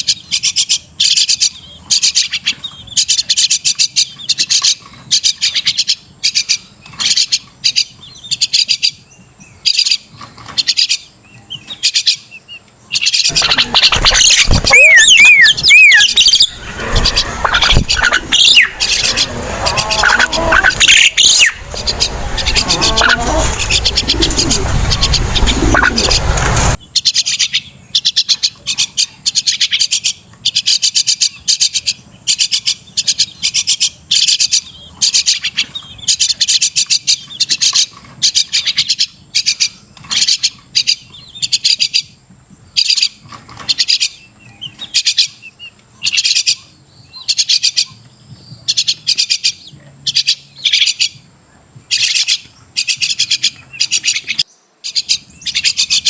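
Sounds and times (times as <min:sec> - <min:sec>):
myna chattering calls: 0:12.9 - 0:42.0
loud harsh noise: 0:13.3 - 0:26.8.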